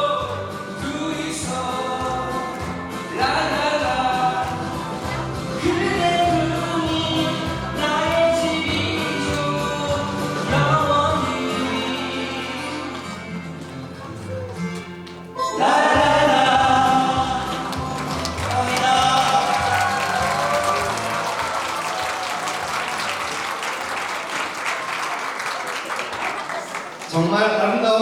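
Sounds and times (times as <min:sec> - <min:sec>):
crowd cheering: 0:15.5 - 0:28.0
applause: 0:17.3 - 0:27.7.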